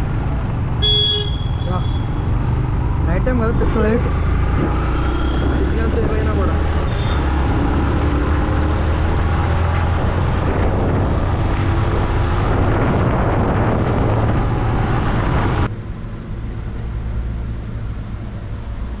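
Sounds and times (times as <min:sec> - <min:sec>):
motorcycle engine droning: 0:00.0 - 0:08.9
wind rush on microphone: 0:01.6 - 0:15.7.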